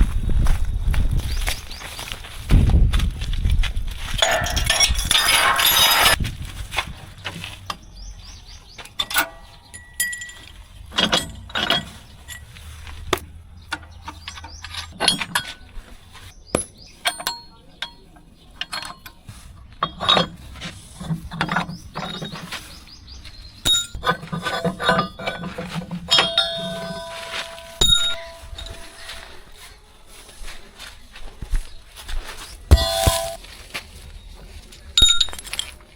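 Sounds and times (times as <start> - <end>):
sharp clinks and knocks: 4.2 - 6.2, 8.9 - 15.7, 16.5 - 19.2, 23.6 - 29.2, 32.7 - 33.4.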